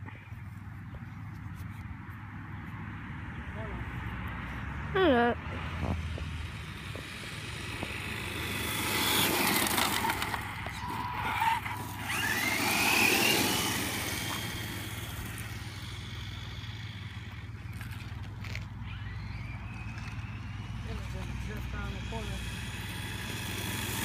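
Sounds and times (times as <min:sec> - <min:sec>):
tyres on dirt: 0:03.5 - 0:24.0
rc car motor whine: 0:06.3 - 0:24.0.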